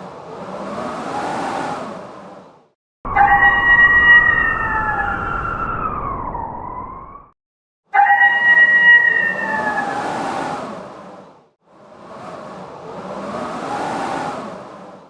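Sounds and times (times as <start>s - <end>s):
wolves howling: 3.1s - 6.4s, 8.0s - 10.2s
rushing whoosh: 8.2s - 15.0s.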